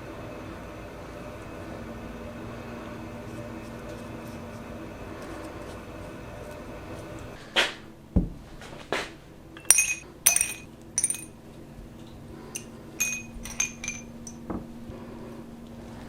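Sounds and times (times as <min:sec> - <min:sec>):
small hard parts clinking: 0:09.6 - 0:11.6, 0:12.5 - 0:14.5.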